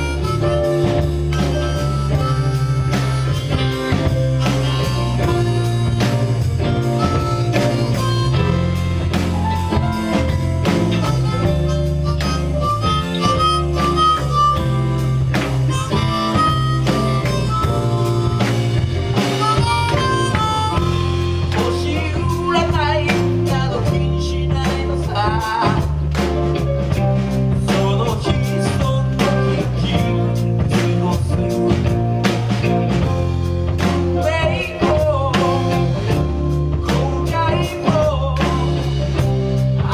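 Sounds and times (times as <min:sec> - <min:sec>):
band playing soul instrumental: 0:00.0 - 0:39.9.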